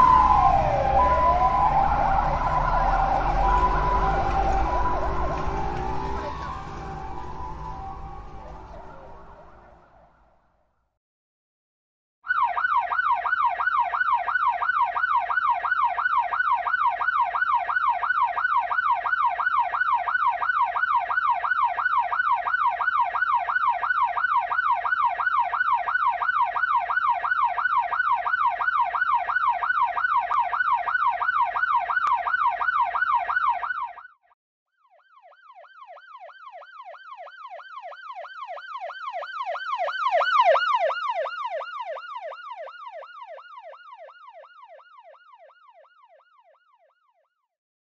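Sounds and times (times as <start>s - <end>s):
second yelping siren: 0.0s - 10.3s
ambulance siren yelping: 0.0s - 10.4s, 12.3s - 34.2s, 34.8s - 47.2s.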